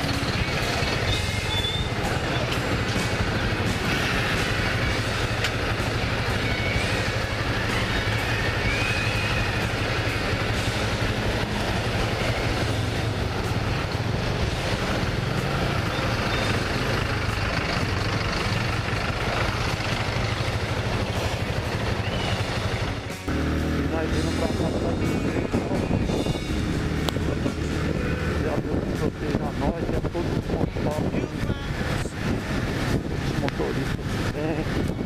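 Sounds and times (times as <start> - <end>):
motorcycle engine running: 0.0 - 35.0
wind on microphone: 24.4 - 35.0.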